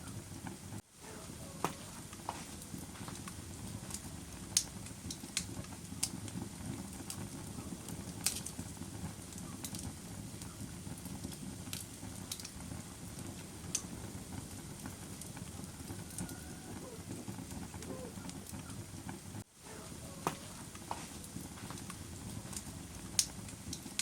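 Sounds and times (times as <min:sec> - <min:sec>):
fire crackling and popping: 0:00.0 - 0:24.0
low rumble of flames: 0:00.0 - 0:24.0.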